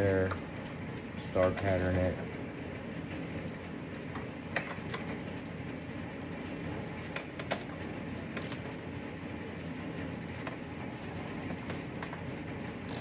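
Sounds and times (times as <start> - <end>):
steady background hum: 0.0 - 13.0
small bolts being worked: 1.6 - 2.3, 8.4 - 8.7, 12.8 - 13.0
hand ratchet clicking: 1.8 - 2.1, 8.4 - 8.6.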